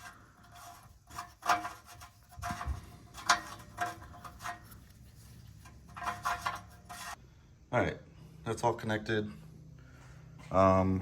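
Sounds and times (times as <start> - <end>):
hands handling parts: 0.0 - 7.2.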